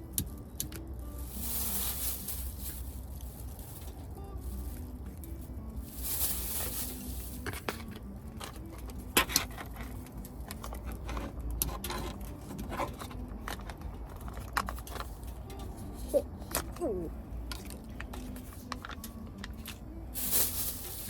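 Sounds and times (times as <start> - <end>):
rustling: 1.0 - 8.7, 18.1 - 21.0.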